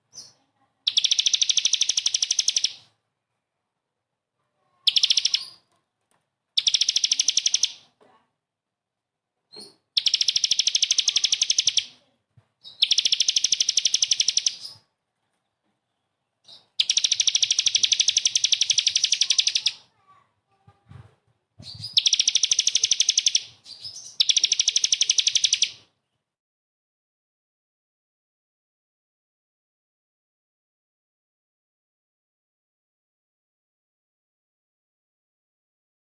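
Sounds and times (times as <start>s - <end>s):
bird singing harsh rapid notes: 0.1s - 2.9s, 4.8s - 5.7s, 6.6s - 7.9s, 9.5s - 12.0s, 12.6s - 14.9s, 16.4s - 20.0s, 21.6s - 25.9s.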